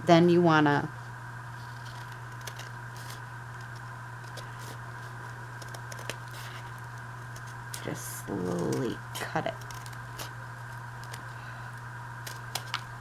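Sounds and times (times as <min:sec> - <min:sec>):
steady electrical hum: 0:00.0 - 0:13.0
envelope paper rustling: 0:01.5 - 0:11.5.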